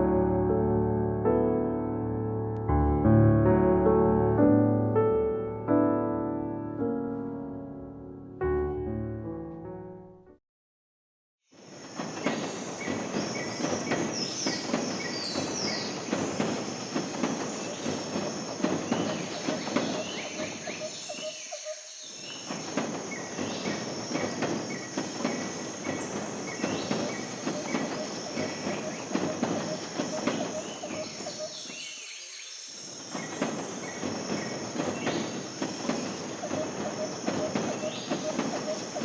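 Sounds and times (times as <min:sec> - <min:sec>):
train wheels rattling and clicking: 0:11.8 - 0:21.3, 0:22.2 - 0:31.8, 0:33.0 - 0:39.0.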